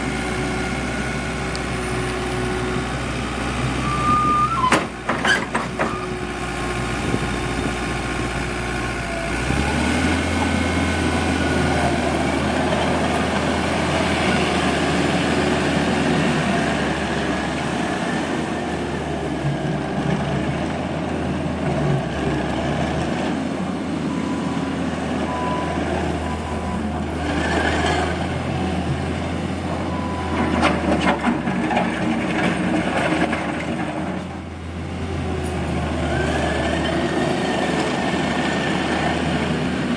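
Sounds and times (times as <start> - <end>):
track loader diesel engine running: 0.0 - 39.9
short beeps: 3.8 - 4.7.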